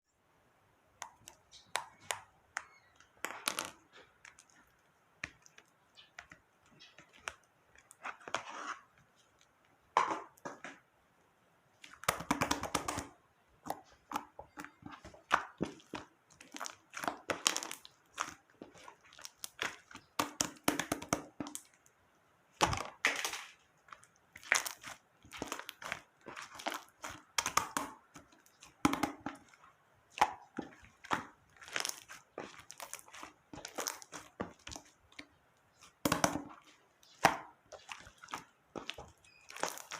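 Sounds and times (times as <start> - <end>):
slime crackling and popping: 11.8 - 21.8, 22.5 - 39.9.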